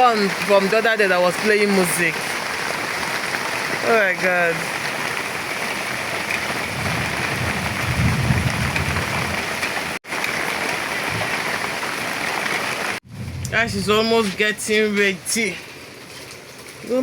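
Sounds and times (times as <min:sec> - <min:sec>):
heavy rain falling: 0:00.0 - 0:17.0
low rumble: 0:13.0 - 0:14.6.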